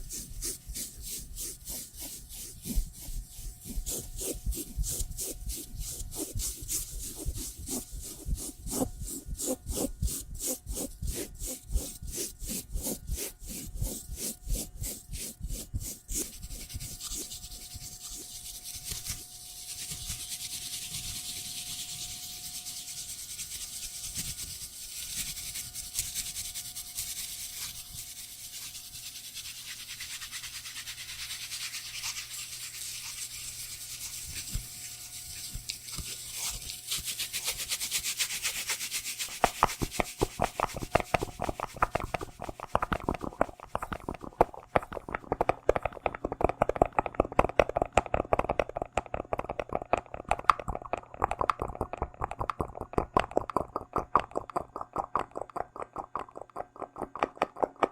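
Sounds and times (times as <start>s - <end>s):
rapid clicks and taps: 38.7s - 57.9s.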